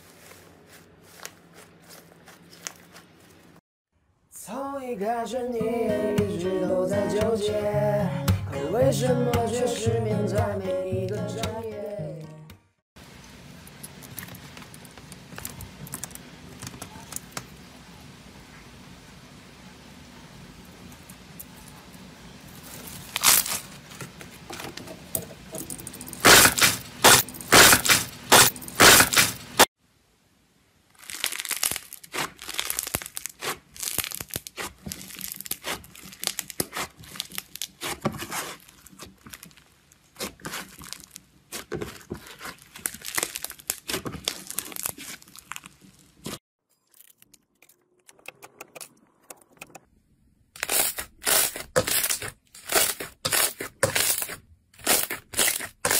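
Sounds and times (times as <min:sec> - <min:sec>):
slime crackling and popping: 0:22.6 - 0:23.7, 0:30.9 - 0:46.4.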